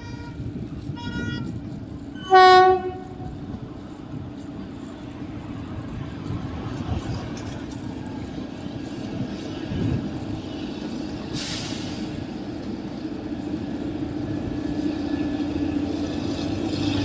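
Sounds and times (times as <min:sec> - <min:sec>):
train running: 0:00.0 - 0:17.0
short hiss: 0:11.3 - 0:12.1.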